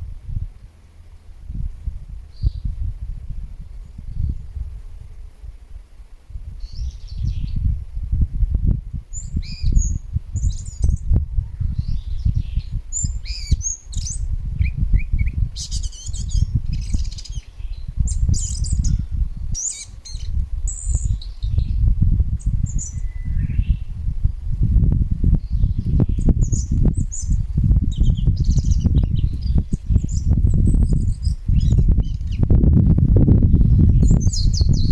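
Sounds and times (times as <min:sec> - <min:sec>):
small birds chirping: 0:02.3 - 0:02.8, 0:06.6 - 0:08.0, 0:09.1 - 0:24.4, 0:25.3 - 0:32.6, 0:33.4 - 0:34.9.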